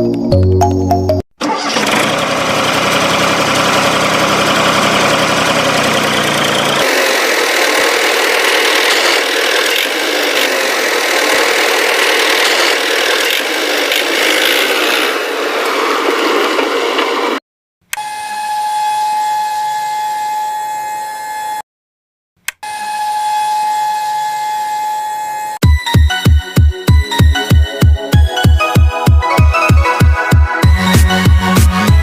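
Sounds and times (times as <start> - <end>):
engine mechanical rattle: 1.4 - 15.4.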